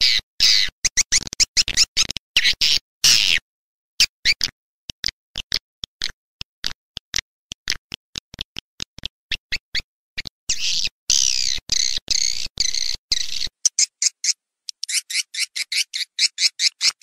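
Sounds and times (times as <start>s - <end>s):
recorded bird chirps: 0.0s - 3.4s, 8.3s - 17.0s.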